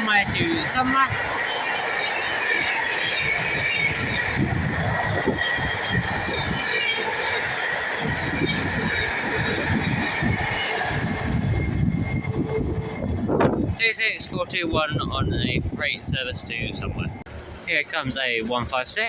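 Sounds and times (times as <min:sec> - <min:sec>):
train wheels rumbling on rails: 0:00.0 - 0:19.0
high squeal from wheels: 0:00.5 - 0:13.2.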